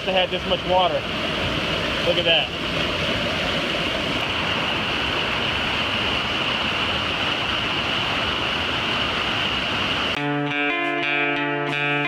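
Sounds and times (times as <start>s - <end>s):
waterfall rushing: 0.0s - 10.2s
guitar music: 10.2s - 12.0s.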